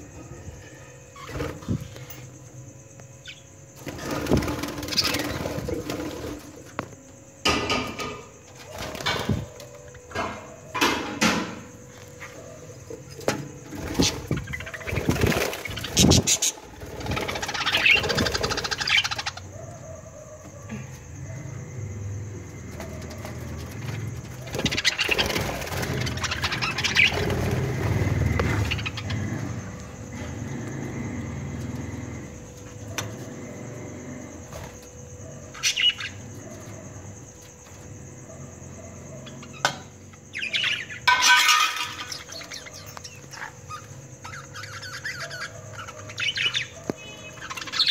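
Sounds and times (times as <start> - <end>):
wings flapping: 3.8 - 6.6, 13.8 - 18.8, 22.8 - 28.9
bird squawks: 14.3 - 19.5
budgerigars chirping: 24.7 - 27.4.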